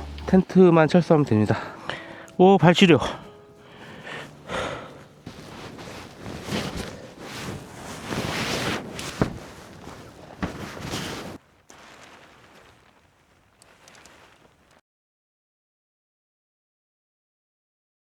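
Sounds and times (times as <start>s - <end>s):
rustling: 3.0s - 14.8s.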